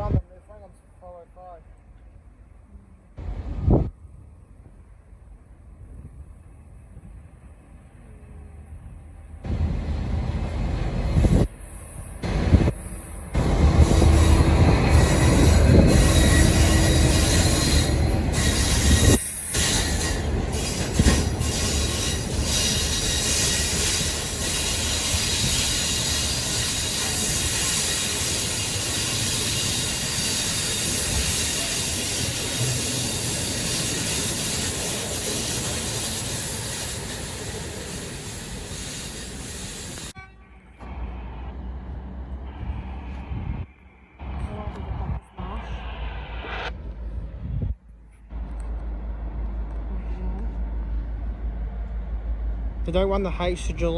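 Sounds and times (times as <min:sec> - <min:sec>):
train passing rumble: 0:00.0 - 0:53.9
wheels on rail squealing: 0:11.1 - 0:40.2.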